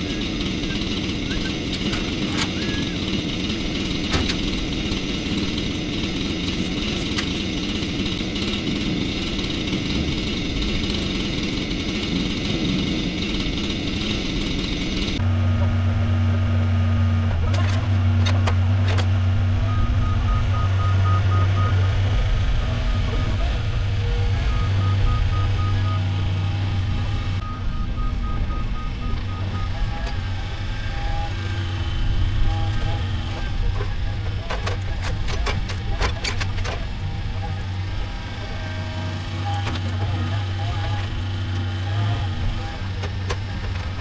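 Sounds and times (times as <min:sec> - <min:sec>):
chainsaw running: 0:00.0 - 0:27.4, 0:28.7 - 0:44.0
large engine humming: 0:00.0 - 0:44.0
faint reversing alarm beeping: 0:19.6 - 0:22.0, 0:22.6 - 0:26.6, 0:27.4 - 0:30.2.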